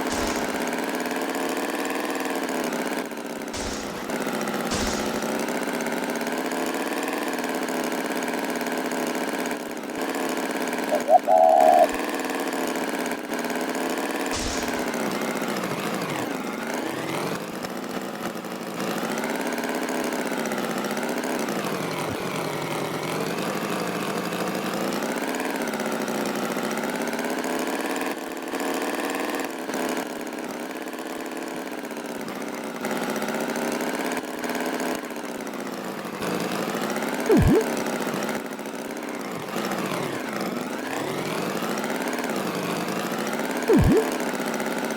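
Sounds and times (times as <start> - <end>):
tractor engine running: 0.0 - 1.3, 3.6 - 6.1, 14.1 - 16.8, 43.7 - 44.6
high-pitched tone: 37.3 - 37.8, 43.7 - 44.2.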